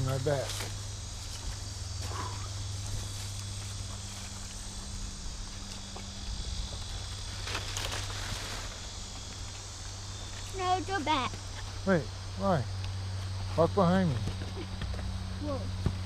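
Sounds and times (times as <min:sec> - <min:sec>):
crunching footsteps: 0:00.0 - 0:11.9
insects buzzing and trilling: 0:00.0 - 0:16.0.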